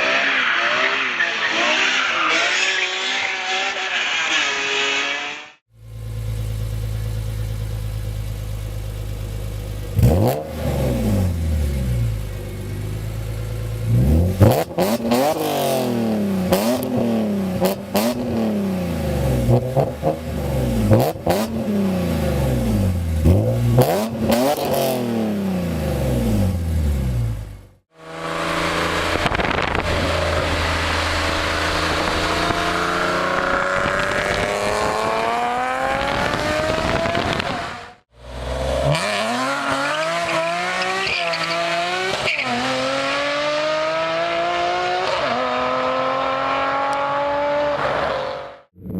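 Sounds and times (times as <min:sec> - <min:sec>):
car accelerating: 0:00.0 - 0:48.9
car engine revving: 0:00.0 - 0:48.9
exhaust crackles: 0:05.7 - 0:41.6.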